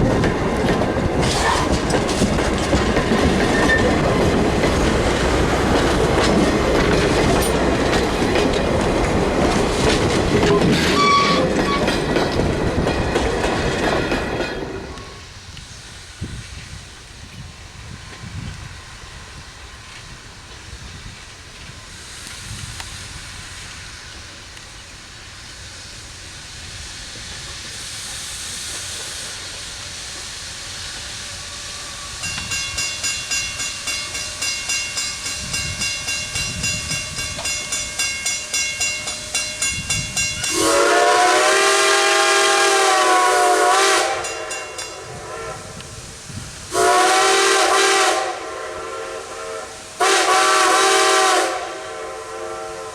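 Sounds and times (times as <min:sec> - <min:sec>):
steam locomotive rumble and hiss: 0:00.0 - 0:52.9.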